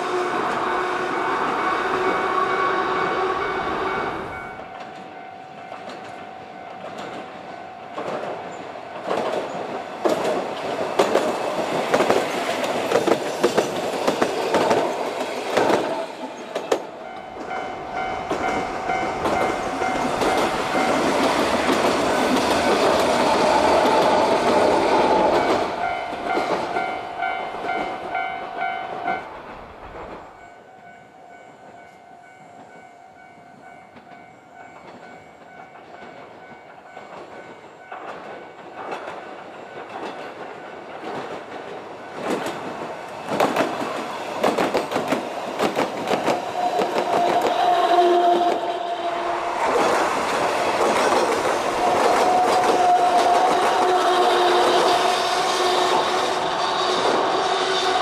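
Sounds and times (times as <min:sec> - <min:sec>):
train wheels clacking: 0:03.0 - 0:30.7, 0:31.3 - 0:58.0
level crossing alarm ringing: 0:17.0 - 0:23.7.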